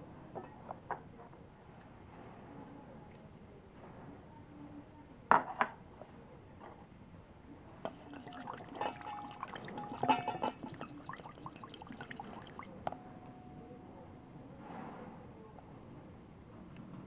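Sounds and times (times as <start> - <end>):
utensil clinking against bowl: 7.9 - 13.2
liquid pouring into bowl: 7.9 - 13.4.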